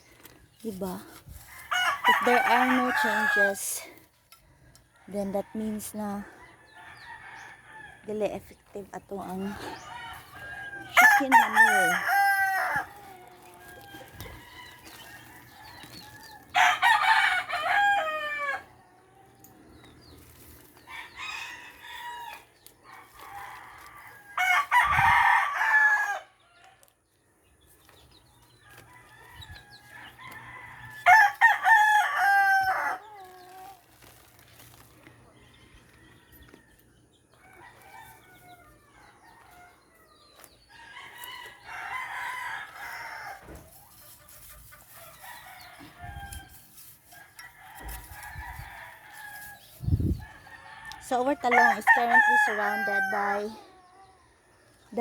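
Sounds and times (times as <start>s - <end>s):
roosters crowing: 0.8s - 26.8s, 27.9s - 55.0s
chickens clucking: 31.8s - 48.6s.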